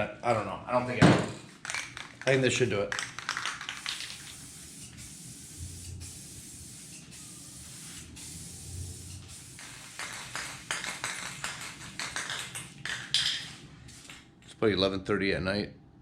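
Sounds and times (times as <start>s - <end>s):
aerosol can spraying: 3.0s - 14.2s.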